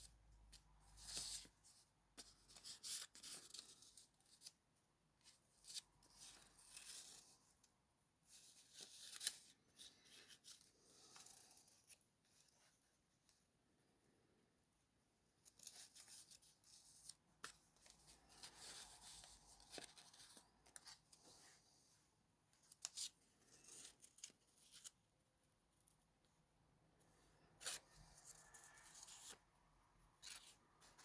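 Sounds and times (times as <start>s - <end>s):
paper rustling: 15.4s - 22.0s, 30.2s - 31.0s.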